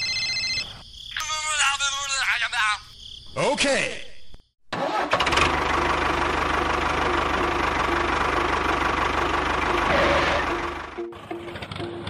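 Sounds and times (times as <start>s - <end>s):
miniature tractor engine running: 4.8s - 12.0s.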